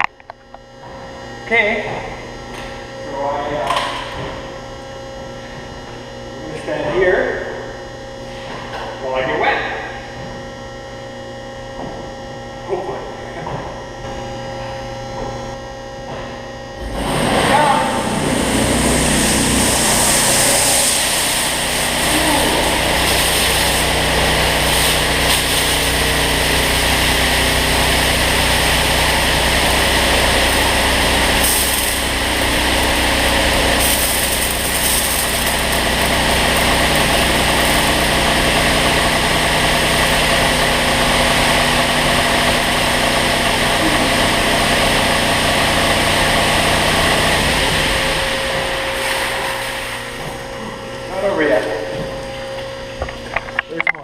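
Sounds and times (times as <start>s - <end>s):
motors and pumps humming: 0.0s - 54.0s
water jets spraying: 16.8s - 50.6s.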